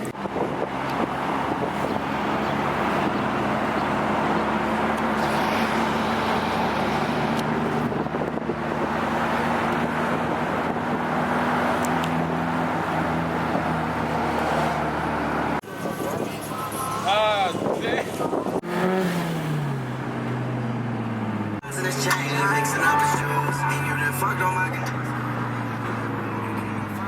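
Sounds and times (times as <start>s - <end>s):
car engine running: 0.0s - 17.2s
road noise: 0.0s - 27.0s.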